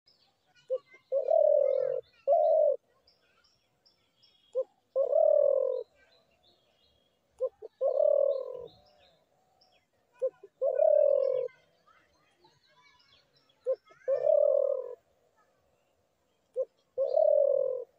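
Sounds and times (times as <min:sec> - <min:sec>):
small birds chirping: 0:00.1 - 0:17.9
dove cooing: 0:00.7 - 0:02.8, 0:04.5 - 0:06.0, 0:07.4 - 0:09.0, 0:10.2 - 0:11.7, 0:13.6 - 0:15.1, 0:16.5 - 0:17.9.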